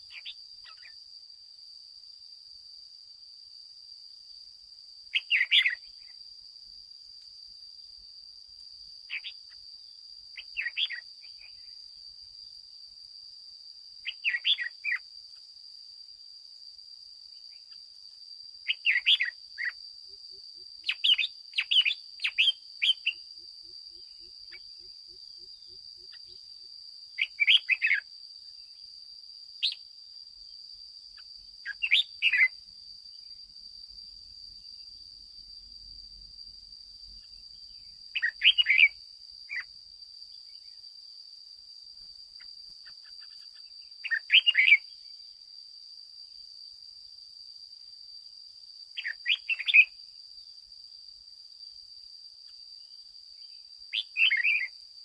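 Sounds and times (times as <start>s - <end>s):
bulbul chirping song: 0.1s - 1.0s, 5.1s - 6.1s, 9.1s - 9.5s, 10.4s - 11.7s, 14.0s - 15.0s, 18.7s - 19.8s, 20.8s - 26.5s, 27.2s - 28.0s, 31.2s - 32.6s, 38.2s - 39.7s, 42.8s - 44.9s, 49.0s - 49.9s, 53.9s - 54.7s.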